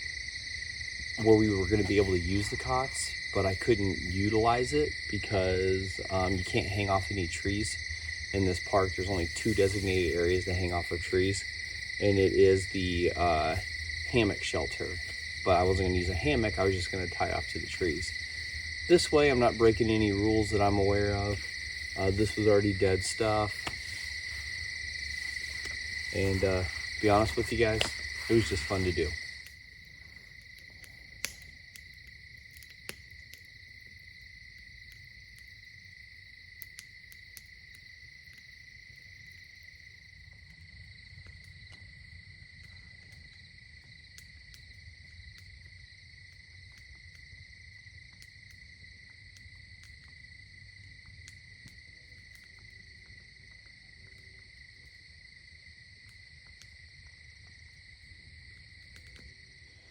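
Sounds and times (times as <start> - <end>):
crickets chirring: 0.0 - 59.9
faint clicks and pops: 17.2 - 35.6, 48.0 - 55.0, 56.0 - 59.9.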